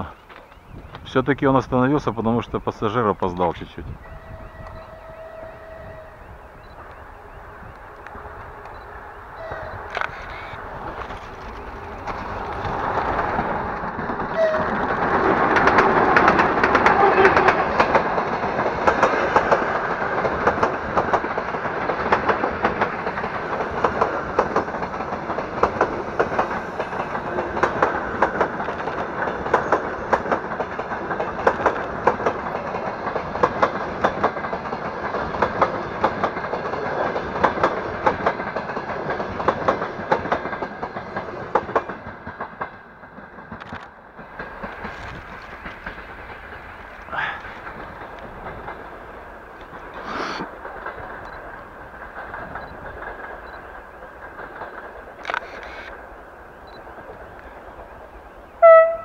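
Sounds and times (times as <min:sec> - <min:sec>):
train wheels clattering over rail joints: 0:09.8 - 0:58.4.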